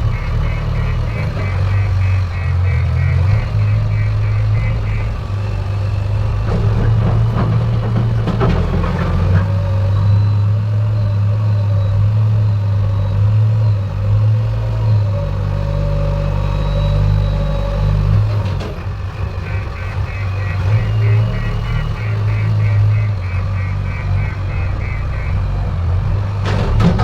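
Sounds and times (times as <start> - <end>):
heavy diesel engine running: 0.0 - 27.0
clanks and rattles: 3.3 - 10.4, 26.2 - 27.0.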